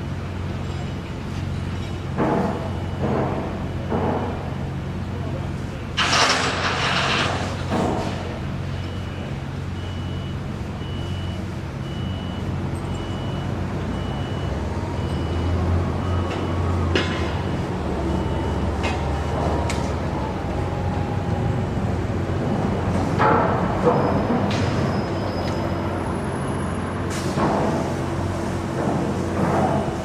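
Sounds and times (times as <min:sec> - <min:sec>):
heavy vehicle engine running: 0:00.0 - 0:30.0
backup alarm beeping: 0:02.5 - 0:04.3, 0:08.6 - 0:21.5
metal clanks and bangs: 0:06.0 - 0:08.4.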